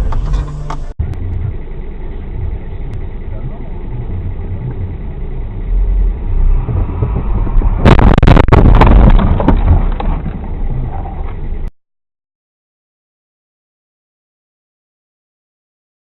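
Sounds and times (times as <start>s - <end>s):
car road and engine rumble: 0.0s - 11.7s.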